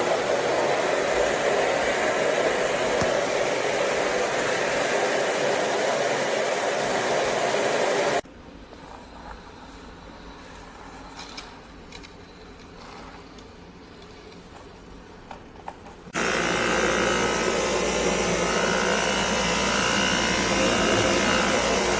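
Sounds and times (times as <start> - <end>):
vacuum cleaner whining: 0.0 - 8.2, 16.2 - 21.9.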